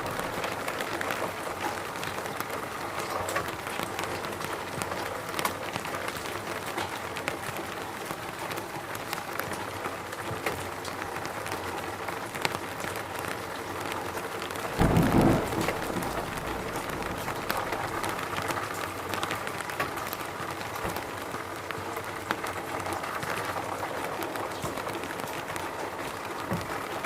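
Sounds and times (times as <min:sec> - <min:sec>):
rain drops ticking: 0:00.0 - 0:27.0
low rumble: 0:14.8 - 0:18.4.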